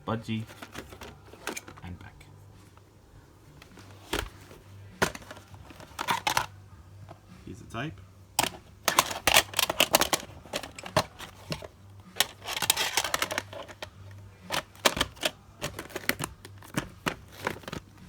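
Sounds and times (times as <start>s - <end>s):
plastic case rustle: 0.3s - 2.1s, 3.5s - 7.2s, 8.4s - 18.0s
plastic clicks and clacks: 0.5s - 1.9s, 5.0s - 6.5s, 8.4s - 17.9s.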